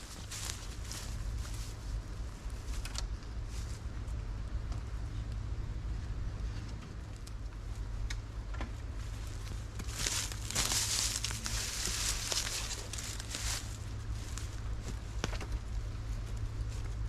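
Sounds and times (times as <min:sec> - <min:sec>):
dry forest litter crunching: 0:00.0 - 0:04.6, 0:08.8 - 0:17.0
small twigs snapping: 0:09.4 - 0:14.5.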